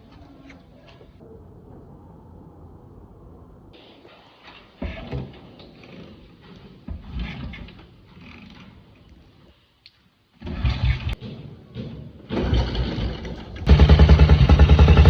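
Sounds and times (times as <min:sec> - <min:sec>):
motorcycle kickstarting: 0:10.4 - 0:15.0
motorcycle engine firing bursts: 0:12.3 - 0:15.0.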